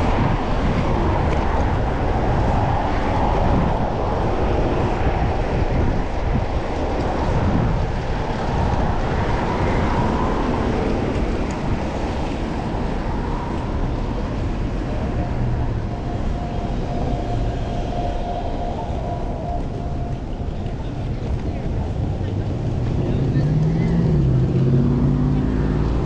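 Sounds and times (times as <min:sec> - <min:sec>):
wind and road noise: 0:00.0 - 0:26.0.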